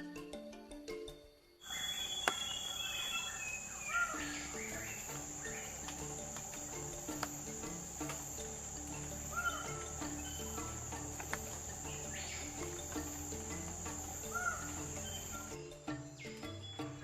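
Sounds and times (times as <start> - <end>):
soft background music: 0.0 - 17.0
short bird calls: 1.6 - 7.1, 8.2 - 15.6
insect drone: 1.6 - 15.8.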